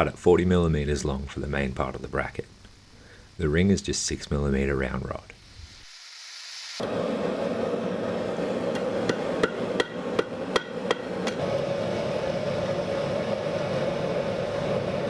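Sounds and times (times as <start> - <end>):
hammer striking steel on anvil: 8.7 - 11.4.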